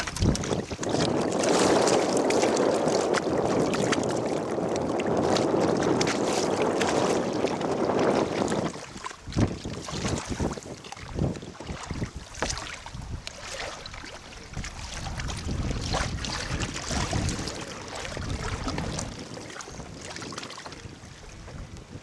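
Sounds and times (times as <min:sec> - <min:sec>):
water lapping: 0:00.0 - 0:22.0
wind buffeting microphone: 0:00.0 - 0:22.0.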